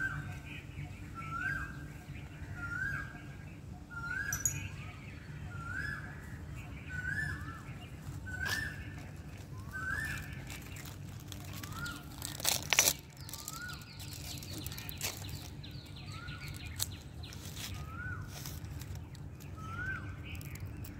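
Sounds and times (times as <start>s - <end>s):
bird whistling call: 3.9s - 6.2s, 6.9s - 10.5s
loud crackling noise: 10.2s - 17.8s.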